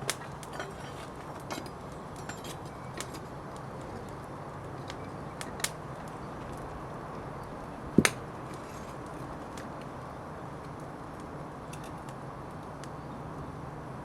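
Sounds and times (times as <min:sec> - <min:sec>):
light metallic clinks: 0:00.4 - 0:03.2.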